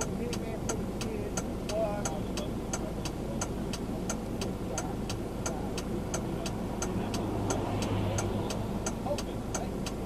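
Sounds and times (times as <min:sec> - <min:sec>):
car engine hum and road noise: 0:00.0 - 0:10.0
turn signal ticking: 0:00.0 - 0:10.0.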